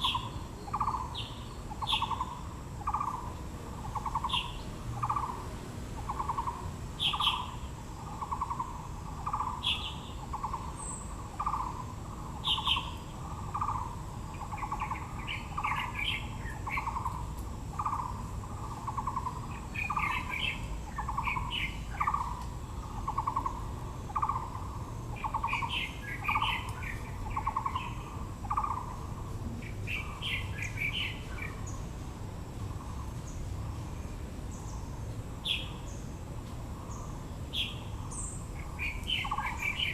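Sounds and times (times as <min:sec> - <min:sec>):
birds high chirps: 0:00.0 - 0:32.0, 0:32.6 - 0:39.9
bird low pulsing call: 0:06.0 - 0:29.3.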